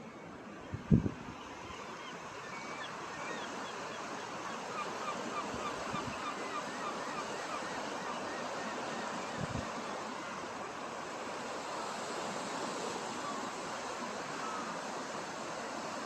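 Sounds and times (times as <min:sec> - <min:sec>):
seabirds calling: 0:00.0 - 0:10.6
surf washing: 0:00.0 - 0:16.0
wind: 0:00.0 - 0:16.0.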